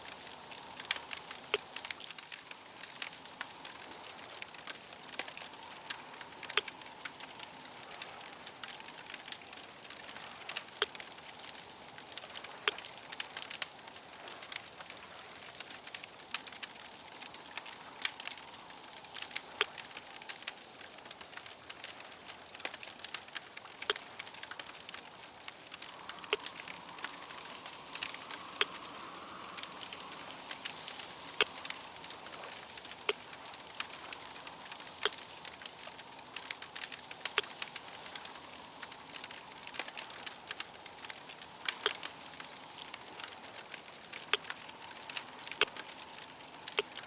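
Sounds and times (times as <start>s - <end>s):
wood fire crackling: 0.0s - 47.0s
faint hum: 23.6s - 43.6s.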